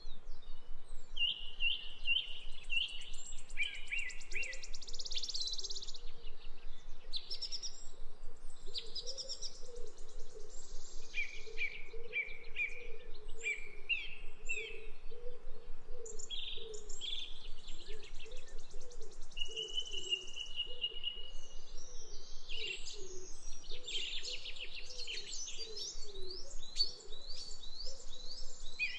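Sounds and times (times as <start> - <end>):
birds chirping and trilling: 0.1 - 28.9.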